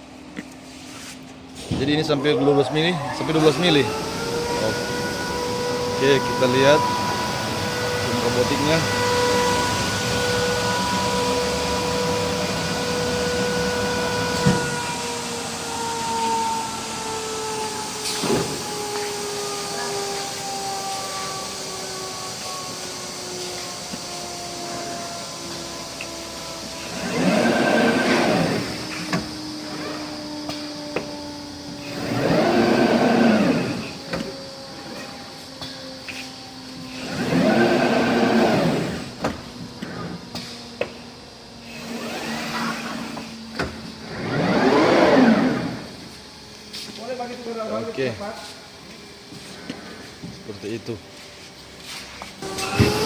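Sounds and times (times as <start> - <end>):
glass-cutting machine whining: 1.8 - 48.2, 51.7 - 53.0.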